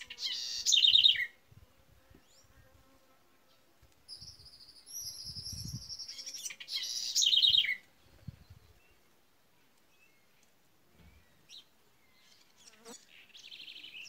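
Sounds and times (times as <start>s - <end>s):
harsh rasping bird song: 0.0s - 1.4s, 4.1s - 9.0s.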